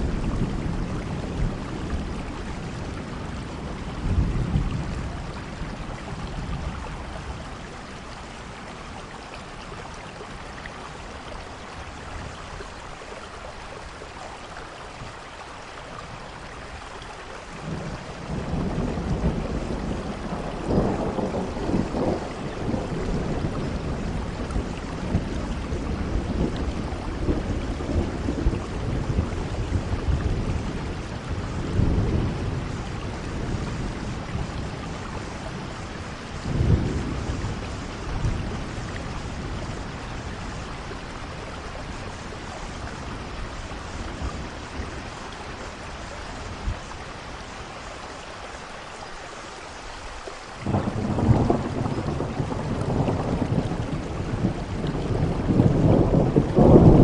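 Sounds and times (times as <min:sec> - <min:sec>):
rolling thunder: 0:00.0 - 0:07.6, 0:17.6 - 0:45.9, 0:50.6 - 0:57.0
steady rainfall: 0:00.0 - 0:57.0.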